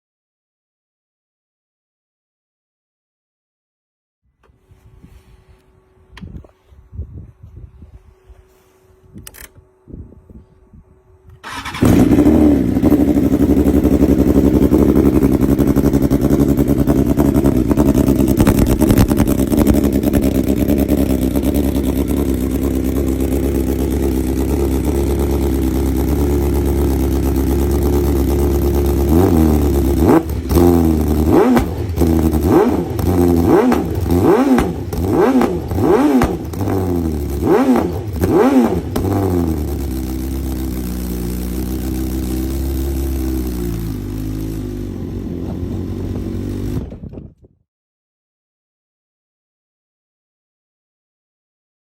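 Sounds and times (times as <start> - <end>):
motorcycle engine idling: 11.4 - 47.0
motorcycle engine revving: 11.4 - 47.3.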